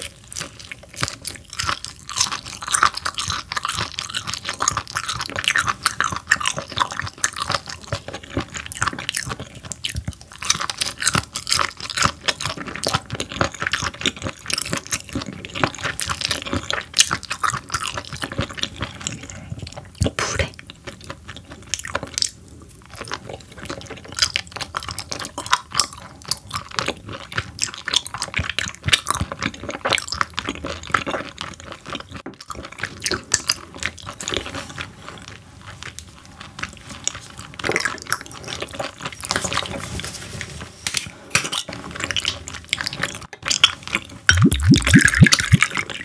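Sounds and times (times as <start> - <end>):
wet chewing and mouth clicks: 0.0 - 39.7, 41.5 - 46.0
liquid pouring into shot glass: 44.3 - 45.9.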